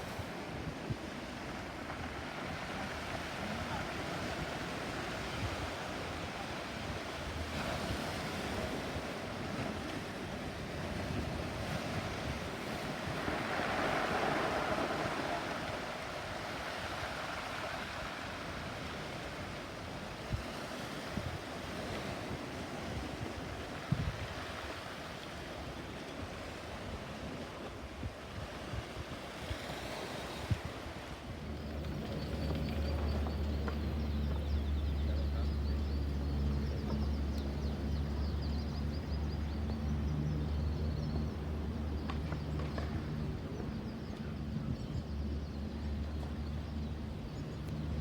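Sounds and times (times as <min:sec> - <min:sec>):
sea waves washing: 0:01.3 - 0:19.2, 0:29.7 - 0:40.3
wind on microphone: 0:20.2 - 0:25.0, 0:26.7 - 0:48.0.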